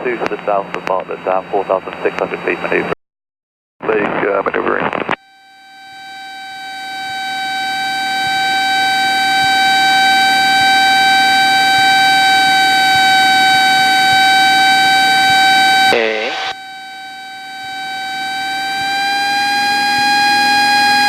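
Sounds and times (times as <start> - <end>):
stall warning horn tone: 5.2 - 21.0.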